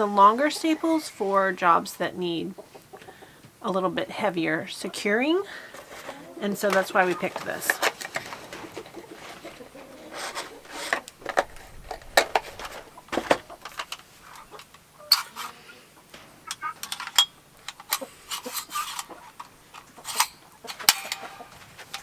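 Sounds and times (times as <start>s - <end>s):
staple gun clacks: 16.8s - 22.0s.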